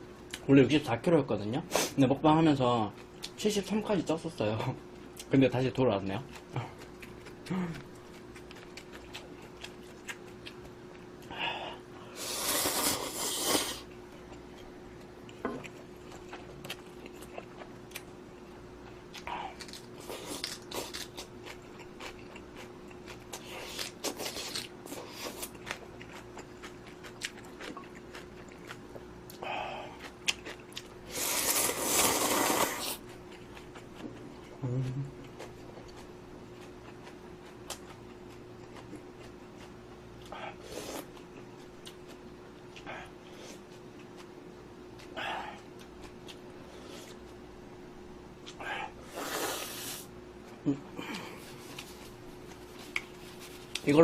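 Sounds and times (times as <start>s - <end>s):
faint steady hum: 0.0s - 54.0s
person chewing noisily: 6.0s - 47.5s.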